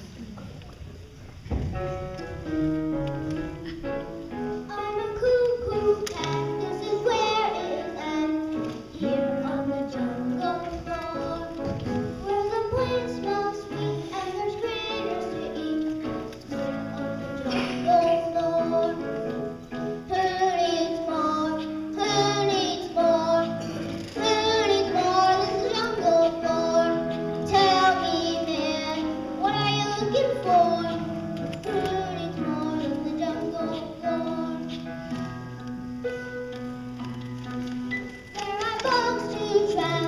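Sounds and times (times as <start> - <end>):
musical accompaniment: 1.2 - 40.0
children singing: 4.7 - 16.6, 17.3 - 35.2, 38.4 - 40.0.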